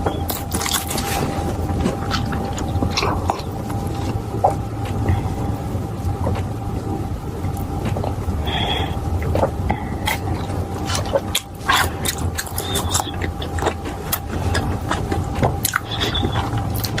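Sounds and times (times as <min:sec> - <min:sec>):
low hum: 0:00.0 - 0:17.0
chewing crunchy fried food: 0:00.1 - 0:06.6, 0:07.4 - 0:17.0.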